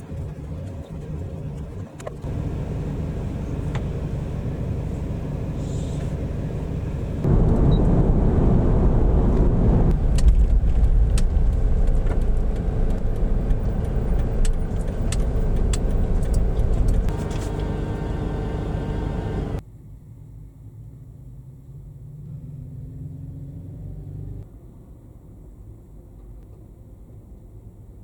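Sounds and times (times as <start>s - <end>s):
vehicle engine rumbling: 0.0s - 19.6s.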